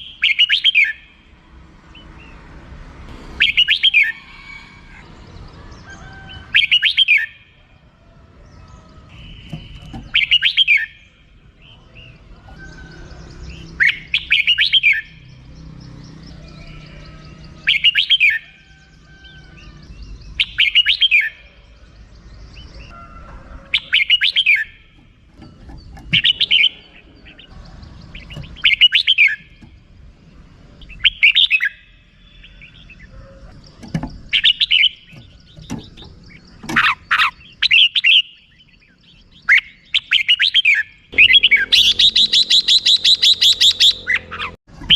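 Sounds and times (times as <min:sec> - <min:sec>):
bird chattering call: 0:09.0 - 0:11.1, 0:23.7 - 0:29.8, 0:30.8 - 0:44.9.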